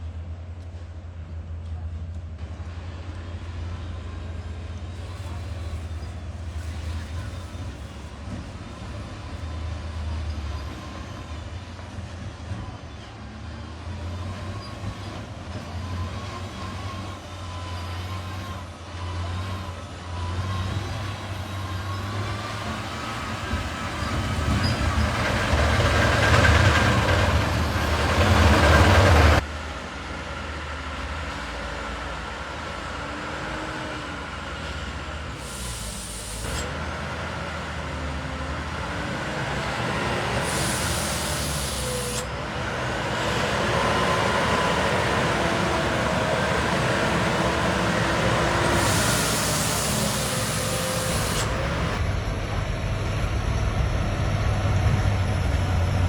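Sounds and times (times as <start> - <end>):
truck engines running: 0.1 - 56.0
high hissing bursts: 35.4 - 36.7, 40.2 - 42.3, 47.1 - 52.0.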